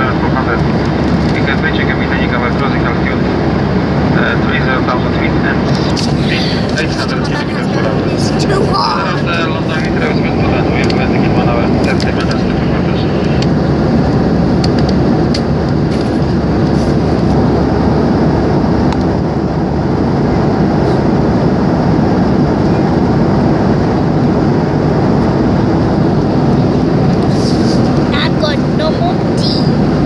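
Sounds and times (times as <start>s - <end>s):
airliner cabin drone: 0.0s - 30.0s.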